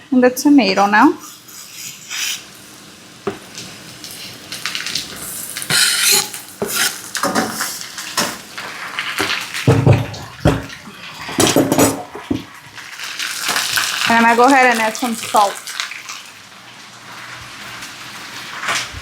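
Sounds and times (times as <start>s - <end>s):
potatoes frying in oil: 0.1s - 19.0s
metal utensil scraping frying pan: 0.7s - 2.6s, 5.2s - 9.4s.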